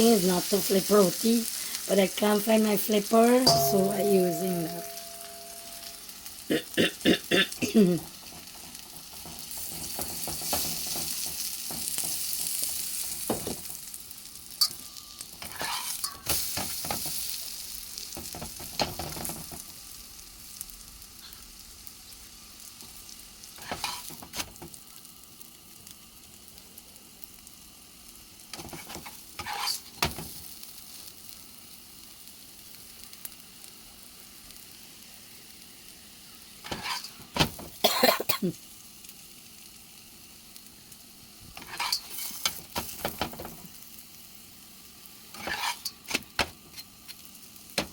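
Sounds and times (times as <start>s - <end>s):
flatbread sizzling in a pan: 0.0s - 47.9s
utensil scraping a pan: 14.6s - 16.4s, 28.7s - 30.0s, 36.6s - 37.4s, 41.6s - 42.6s, 45.4s - 47.2s.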